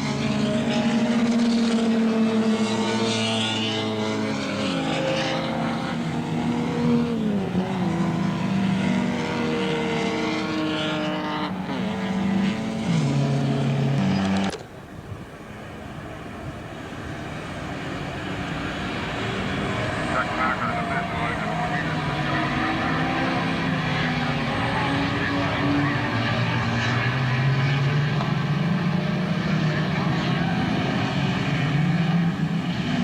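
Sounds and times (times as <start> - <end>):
racing car engines running hard: 0.0 - 14.6, 15.5 - 33.0.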